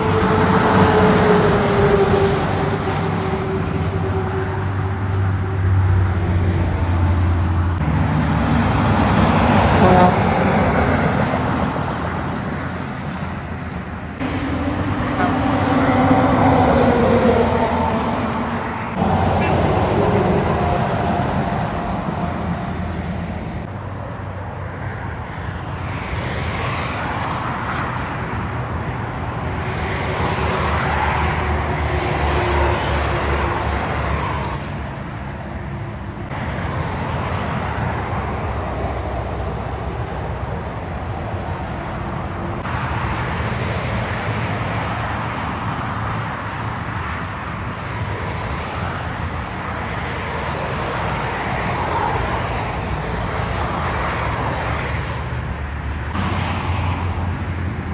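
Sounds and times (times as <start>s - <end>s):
diesel engine rumble: 0.0s - 23.9s.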